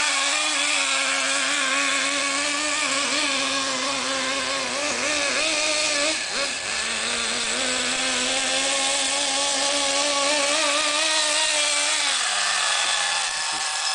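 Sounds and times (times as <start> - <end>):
small nitro engine revving: 0.0 - 13.9.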